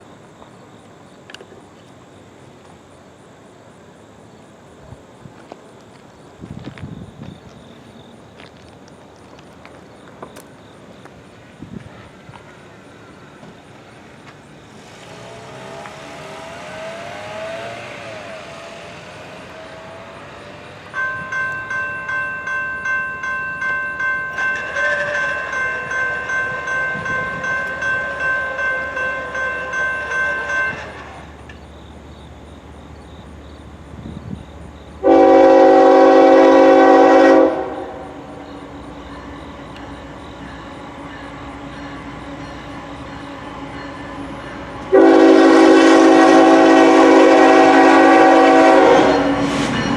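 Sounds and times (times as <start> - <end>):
rushing noise: 11.2 - 22.0, 46.2 - 49.9
crossing bell ringing: 19.5 - 31.5, 35.0 - 49.9
locomotive air horn blast: 35.0 - 38.2, 44.9 - 49.8.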